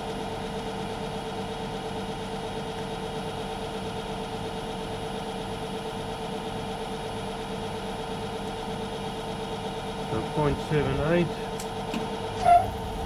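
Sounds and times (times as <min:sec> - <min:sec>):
lathe running: 0:10.0 - 0:13.0.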